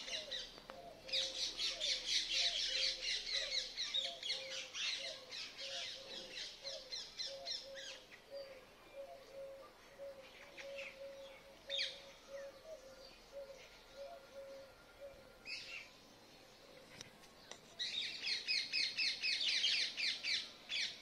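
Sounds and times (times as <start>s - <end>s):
birds chirping and squawking: 0.0s - 16.0s.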